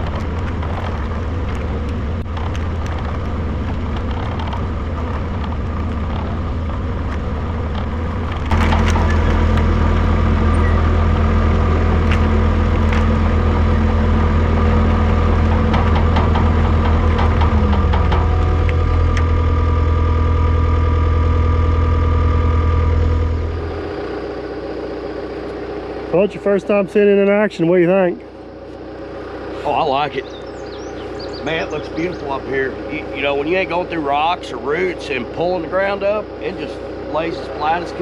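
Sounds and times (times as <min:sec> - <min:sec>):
clicks and clanks: 0:00.0 - 0:10.0, 0:14.6 - 0:19.3
diesel engine under load: 0:00.0 - 0:38.0.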